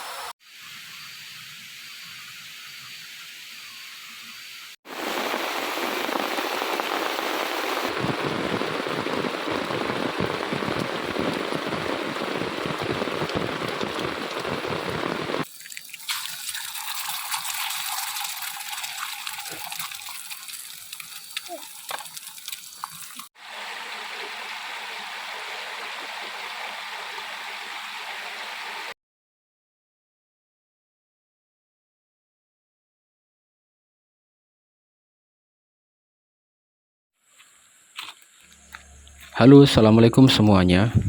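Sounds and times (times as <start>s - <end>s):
heavy rain pouring: 4.8s - 15.5s, 18.2s - 28.9s
flowing river: 4.9s - 28.9s.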